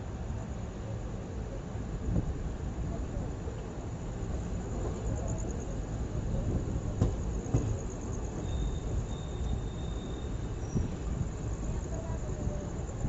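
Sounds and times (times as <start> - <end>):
train rumbling on rails: 0.0 - 13.0
faint high whine: 7.3 - 13.0.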